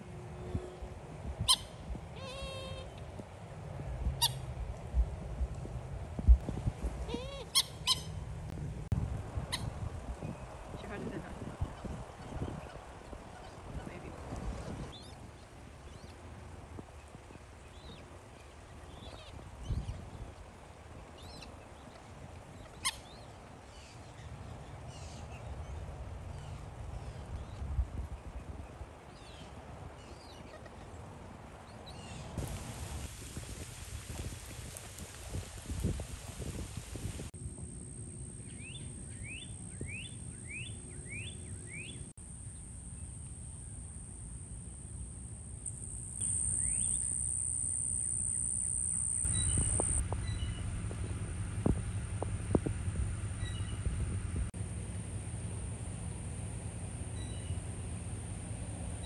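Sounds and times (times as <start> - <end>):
steady high-pitched hiss: 31.0 - 59.0
low steady rumble: 49.3 - 59.0.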